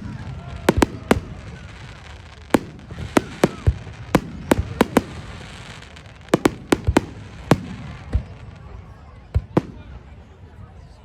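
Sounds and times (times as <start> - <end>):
fireworks bangs: 0.0 - 10.6.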